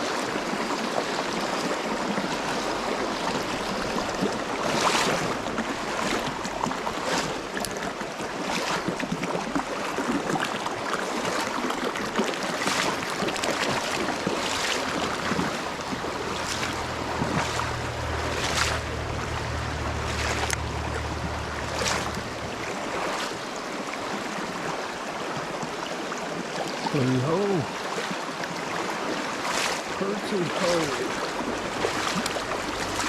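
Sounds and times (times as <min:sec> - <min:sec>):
river water rushing: 0:00.0 - 0:33.0
sharp clicks or splashes: 0:12.2 - 0:23.4, 0:30.6 - 0:33.0
low steady hum: 0:13.0 - 0:23.4, 0:30.8 - 0:33.0.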